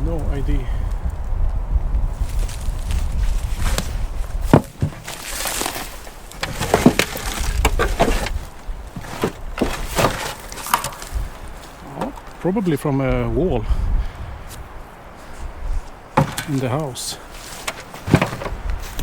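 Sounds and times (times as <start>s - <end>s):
dry wood cracking and snapping: 0.8s - 12.5s.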